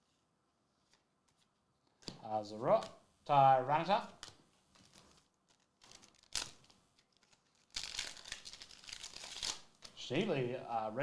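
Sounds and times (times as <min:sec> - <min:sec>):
foil wrapper crackling and crinkling: 0:04.2 - 0:10.0.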